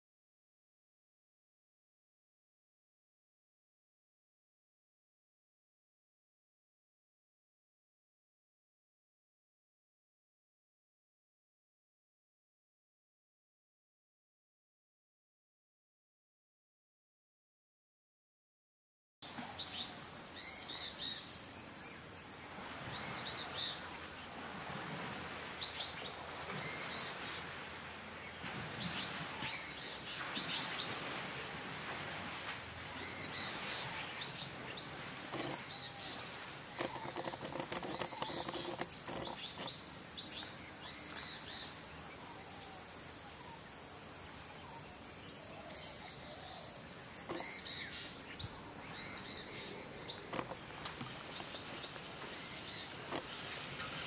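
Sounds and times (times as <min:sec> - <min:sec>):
wild birds chirping: 0:19.2 - 0:31.2, 0:32.8 - 0:54.0
outdoor hiss: 0:19.2 - 0:54.0.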